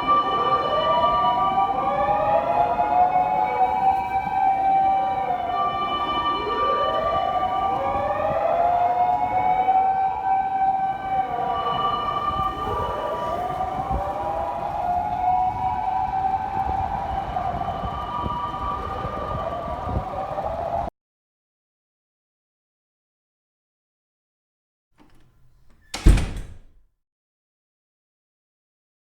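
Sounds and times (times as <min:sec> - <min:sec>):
two-tone siren: 0:00.0 - 0:20.9
wailing siren: 0:00.0 - 0:20.9.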